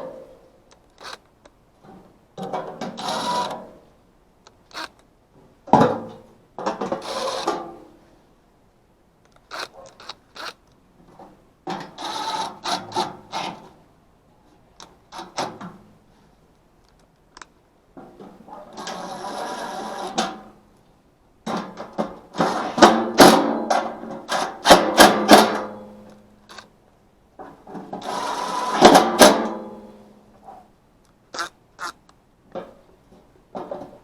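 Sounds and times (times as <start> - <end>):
steady whir: 0.7 - 1.3, 4.5 - 5.0
clicking and metal clatter: 0.7 - 3.6, 4.4 - 5.1, 9.2 - 10.8, 23.2 - 26.7
loud clicks and rattles: 26.5 - 26.7.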